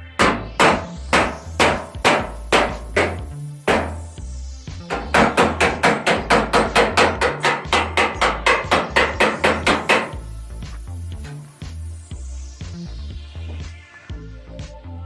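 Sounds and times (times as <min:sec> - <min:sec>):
hammer striking metal: 0:00.0 - 0:04.2, 0:04.9 - 0:10.2
electronic music with bass line: 0:00.0 - 0:15.0.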